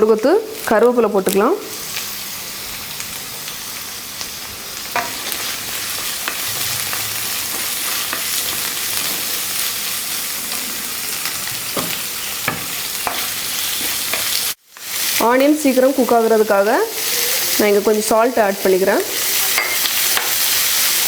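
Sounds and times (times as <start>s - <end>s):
shallots sizzling in hot oil: 0.0s - 21.0s.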